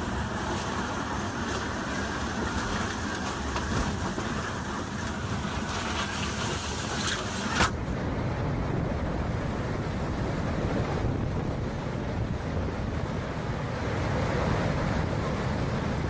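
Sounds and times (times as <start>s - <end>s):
rain: 0.0s - 16.0s
storm wind gusting: 7.7s - 16.0s.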